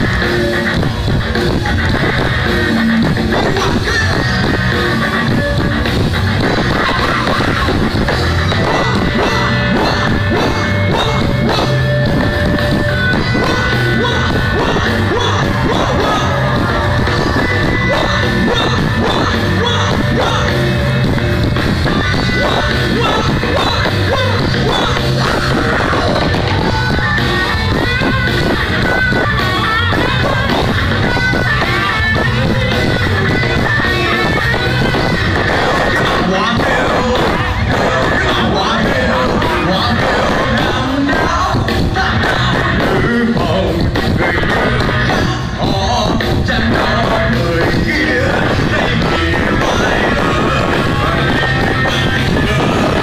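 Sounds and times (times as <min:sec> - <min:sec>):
loud rock music: 0:00.0 - 0:53.0
person singing and yelling: 0:01.4 - 0:53.0.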